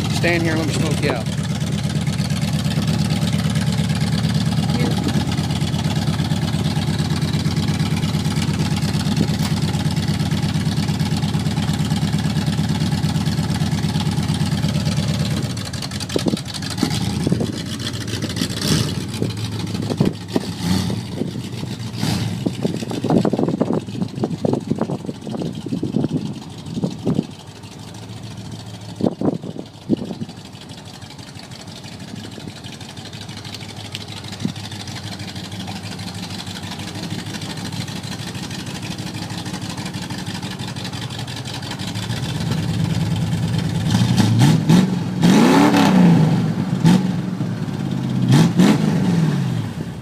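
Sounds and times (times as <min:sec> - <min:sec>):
engine revving: 0:00.0 - 0:23.8, 0:41.1 - 0:50.0
engine idling: 0:00.0 - 0:50.0.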